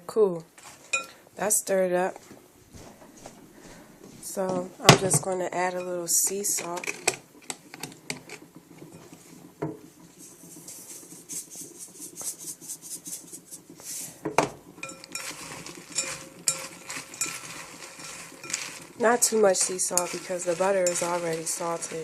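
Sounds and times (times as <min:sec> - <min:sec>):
utensil rustling through cereal: 0:05.3 - 0:22.0
utensil clinking against ceramic bowl: 0:05.7 - 0:07.0, 0:14.8 - 0:22.0.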